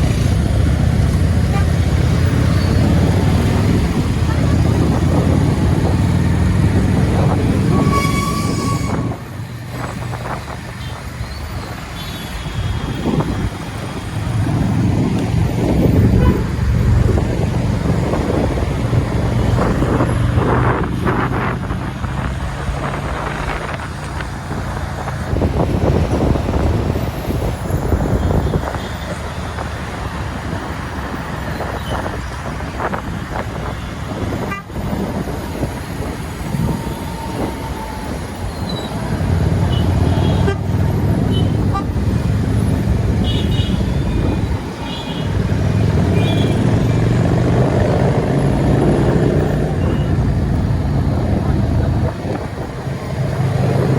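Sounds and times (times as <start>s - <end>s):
motorbike engine and road noise: 0.0s - 53.9s
vehicles passing: 0.0s - 53.9s
vehicle horns: 1.4s - 2.9s, 7.2s - 9.4s, 16.1s - 16.6s, 39.6s - 42.1s, 43.2s - 47.1s.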